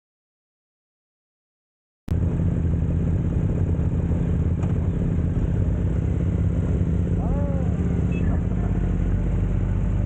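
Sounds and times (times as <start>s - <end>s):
motorcycle engine running: 2.1s - 10.0s.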